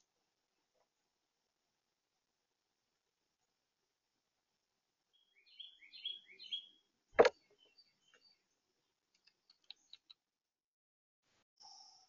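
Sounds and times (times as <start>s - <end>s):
faint clicks: 9.1s - 10.2s.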